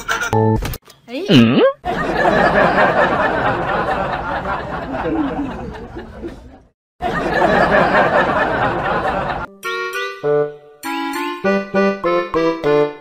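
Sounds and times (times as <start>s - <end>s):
group laughing and chattering: 1.8s - 9.5s.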